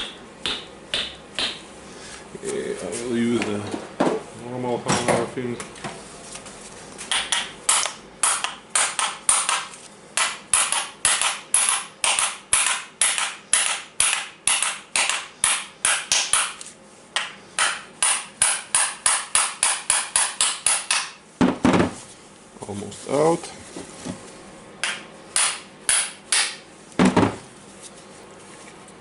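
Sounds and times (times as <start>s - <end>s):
hammer striking metal: 0.0s - 1.6s, 24.8s - 26.6s.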